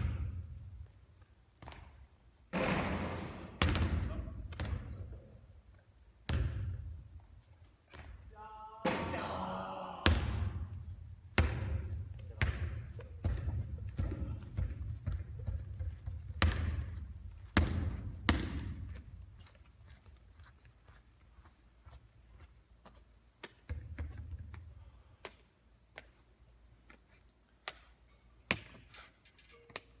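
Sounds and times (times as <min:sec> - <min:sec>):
basketball bouncing on hard court: 0:01.6 - 0:05.1, 0:06.2 - 0:07.0, 0:07.9 - 0:08.2, 0:10.0 - 0:19.0, 0:23.4 - 0:24.6.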